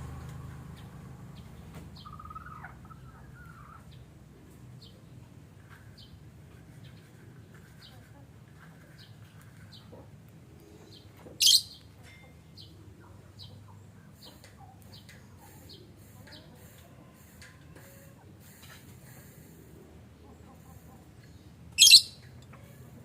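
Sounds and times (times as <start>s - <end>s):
lovebirds chirping: 0.8s - 4.1s, 10.6s - 16.0s, 20.2s - 22.5s
sharp bird call: 21.8s - 22.2s.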